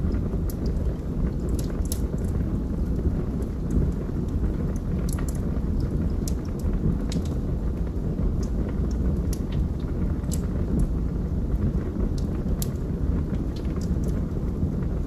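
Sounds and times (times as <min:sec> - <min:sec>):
log fire crackling and popping: 0:00.0 - 0:15.0.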